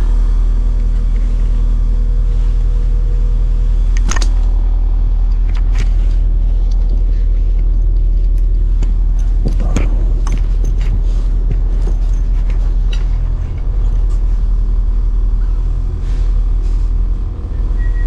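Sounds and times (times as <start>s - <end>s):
train rumbling: 0.0s - 18.0s
clicks and rattles: 3.9s - 4.7s, 5.3s - 15.8s.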